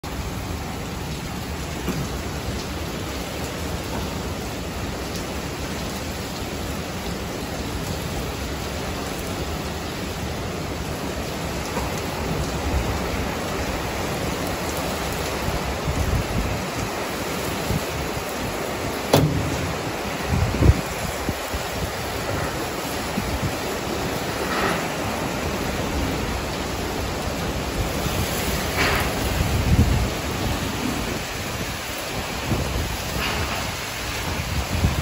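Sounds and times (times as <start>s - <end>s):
heavy rain pouring: 0.0s - 35.0s
wind gusts buffeting microphone: 6.8s - 35.0s
sharp knock: 19.1s - 19.7s.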